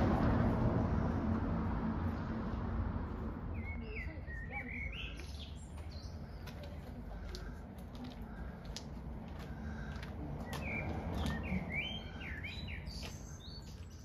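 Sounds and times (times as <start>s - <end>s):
steady low rumble: 0.0s - 4.6s
small birds chirping: 3.5s - 8.9s, 9.5s - 14.0s.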